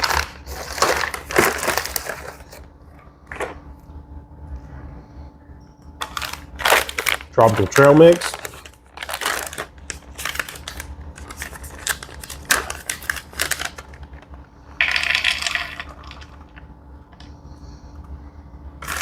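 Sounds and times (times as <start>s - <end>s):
snack pouch crinkling: 0.0s - 2.7s, 6.0s - 16.6s.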